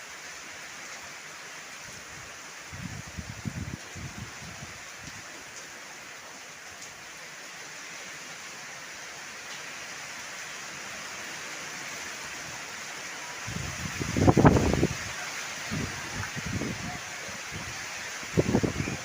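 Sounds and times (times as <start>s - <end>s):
heavy rain: 0.0s - 19.0s
wind buffeting microphone: 2.7s - 4.7s, 13.5s - 15.1s, 15.7s - 19.0s.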